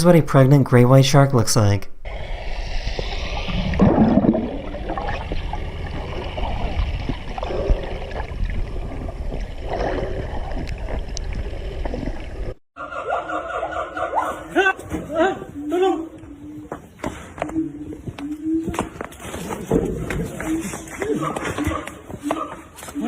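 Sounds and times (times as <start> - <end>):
water gurgling and sloshing: 2.1 - 12.6.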